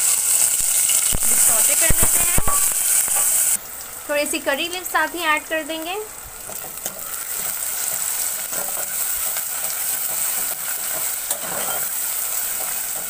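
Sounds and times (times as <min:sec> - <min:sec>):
food sizzling in hot oil: 0:00.0 - 0:13.0
spatula scraping and tapping pan: 0:01.4 - 0:03.5, 0:06.4 - 0:13.0.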